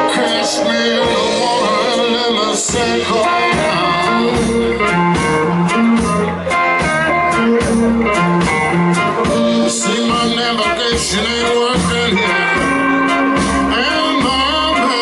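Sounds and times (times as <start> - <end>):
electric guitar lead: 0.0 - 15.0
live blues band playing: 0.0 - 15.0.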